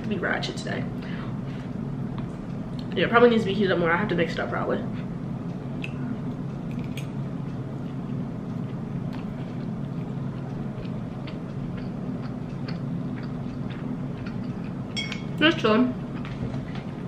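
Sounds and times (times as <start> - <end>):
steady low hum: 0.0 - 17.0
person chewing food: 7.7 - 15.0.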